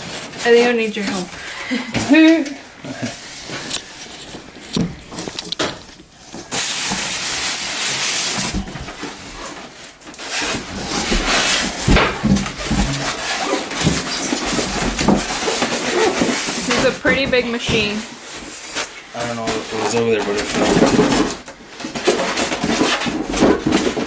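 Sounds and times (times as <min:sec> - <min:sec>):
packaging rustling: 0:00.0 - 0:16.7
loud steady rustling hiss: 0:00.0 - 0:17.0
knocks and thumps: 0:10.8 - 0:16.3.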